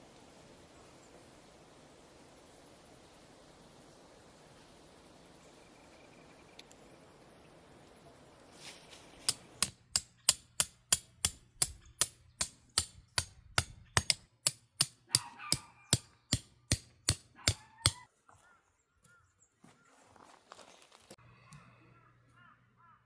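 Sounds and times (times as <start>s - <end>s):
sharp knocks: 9.6s - 18.0s.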